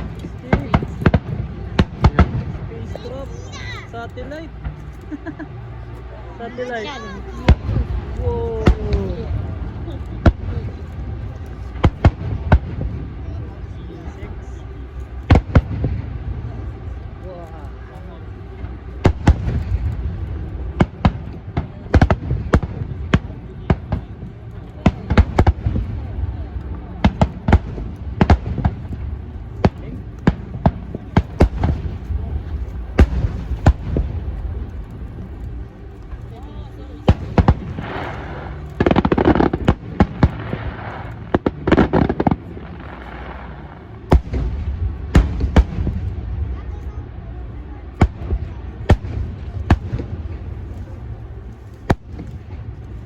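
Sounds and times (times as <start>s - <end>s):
fireworks bangs: 0.0s - 3.5s, 7.2s - 13.4s, 18.6s - 46.8s, 47.9s - 51.2s
fireworks crackling: 0.0s - 53.0s
low rumble: 0.0s - 53.0s.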